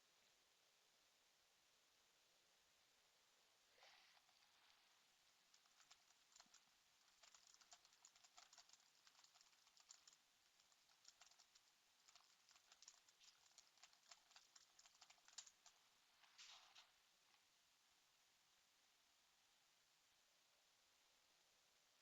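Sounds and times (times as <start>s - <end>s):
typing on computer keyboard: 5.5s - 15.8s.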